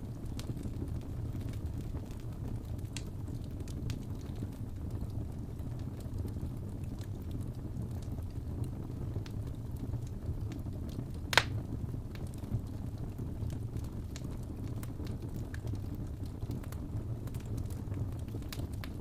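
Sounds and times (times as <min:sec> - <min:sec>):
low fire rumble: 0:00.0 - 0:19.0
wood fire crackling: 0:00.0 - 0:19.0
sharp fire pop: 0:11.3 - 0:11.6.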